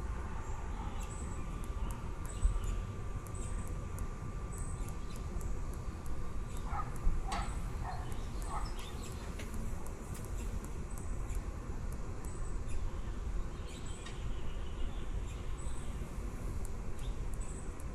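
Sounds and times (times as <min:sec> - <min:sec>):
steady low rumble: 0:00.0 - 0:17.9
low bird calls: 0:06.5 - 0:09.3
baby birds chirping: 0:06.5 - 0:09.4.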